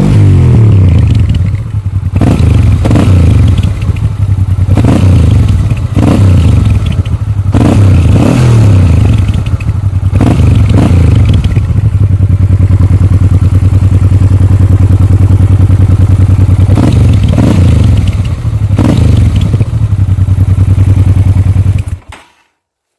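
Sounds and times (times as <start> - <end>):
motorcycle engine idling: 0.0 - 22.2
motorcycle engine revving: 0.0 - 22.2.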